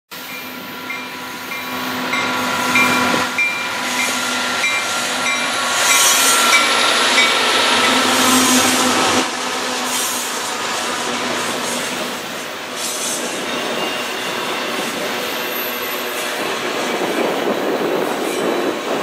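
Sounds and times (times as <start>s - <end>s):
diesel locomotive engine drone: 0.1s - 19.0s
train wheels on rail: 0.1s - 19.0s
bell ringing: 0.2s - 8.2s.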